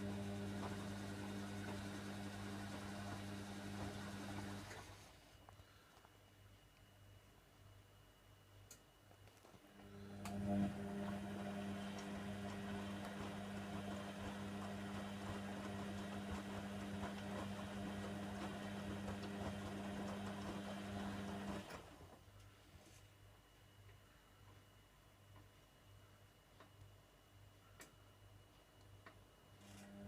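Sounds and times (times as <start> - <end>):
washer dryer humming: 0.0 - 5.1, 9.8 - 22.2.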